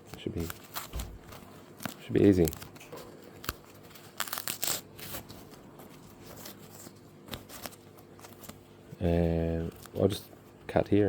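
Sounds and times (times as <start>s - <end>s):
tearing and scraping: 3.4s - 5.4s.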